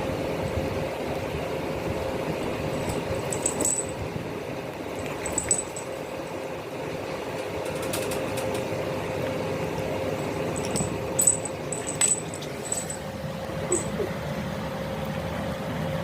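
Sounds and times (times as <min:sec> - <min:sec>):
steady mechanical hum: 0:00.0 - 0:16.0
small metallic jingles: 0:02.7 - 0:04.0, 0:05.0 - 0:06.1, 0:10.2 - 0:14.0.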